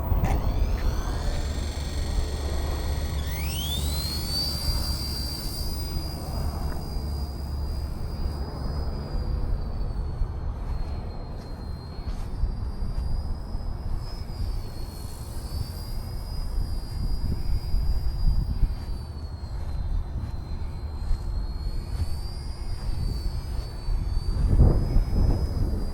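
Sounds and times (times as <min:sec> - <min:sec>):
low rumble: 0:00.0 - 0:14.8
model helicopter whine: 0:00.0 - 0:25.9.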